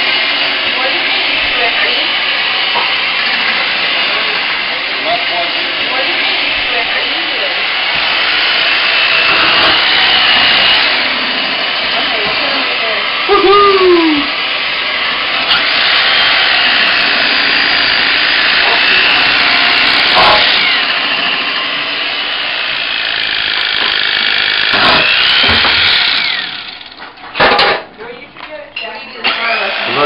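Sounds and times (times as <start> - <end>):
electric carving knife buzzing: 0.0 - 27.2, 29.1 - 30.0
sharp knocks: 24.7 - 25.9.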